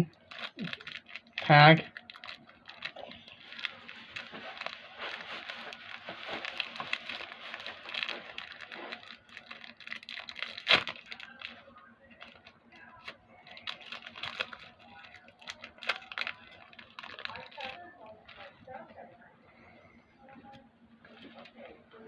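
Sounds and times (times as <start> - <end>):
wrapper crinkling and tearing: 0.1 - 18.6.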